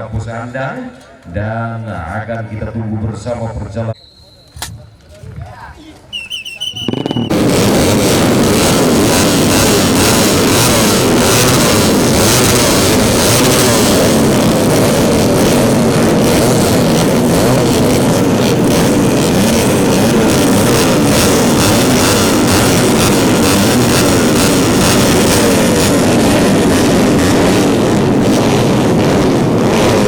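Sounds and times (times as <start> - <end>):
racing motorcycles revving: 6.2 - 30.0.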